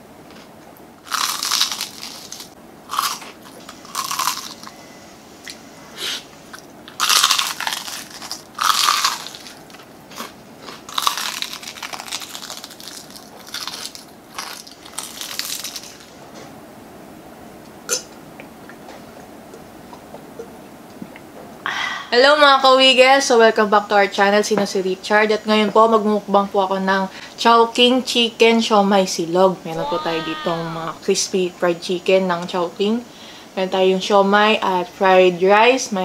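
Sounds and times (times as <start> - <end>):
crispy fried chicken crunching: 1.0 - 4.7, 6.9 - 16.2.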